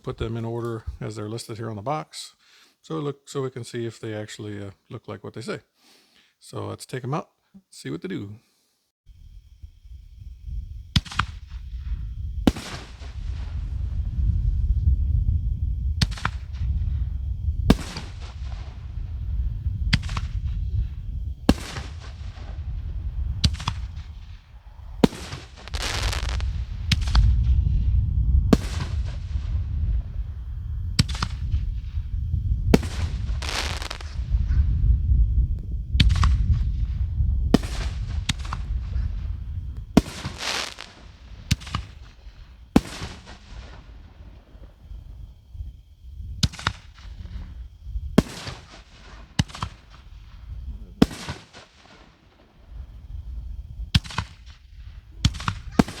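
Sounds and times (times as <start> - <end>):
steady low rumble: 9.1 - 51.1
firework hissing crackle: 9.1 - 56.0
firework shell booms: 10.9 - 14.4, 16.0 - 34.8, 35.5 - 44.4, 48.1 - 50.4, 51.0 - 52.5, 53.9 - 56.0
firework shells banging: 23.4 - 27.2, 32.8 - 34.2, 39.8 - 43.6
small pops: 25.0 - 27.2, 32.8 - 34.1, 39.8 - 41.9.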